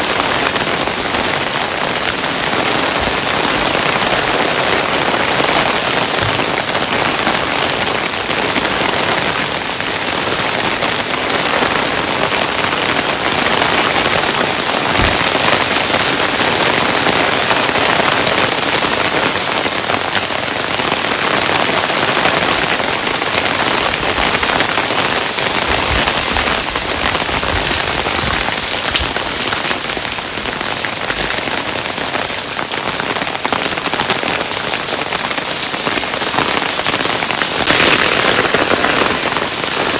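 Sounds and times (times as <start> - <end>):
hailstones falling: 0.1 - 9.3, 10.4 - 39.9
low thuds: 14.8 - 15.9, 23.8 - 30.5.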